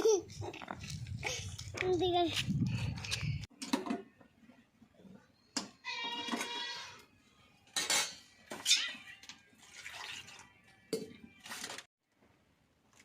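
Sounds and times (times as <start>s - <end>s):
metal pots clanking and scraping: 5.5s - 11.9s.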